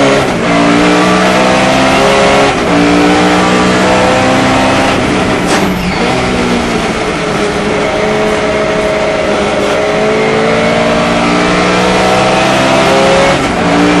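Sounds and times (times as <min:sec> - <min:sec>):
race car engine pulling hard: 0:00.0 - 0:14.0.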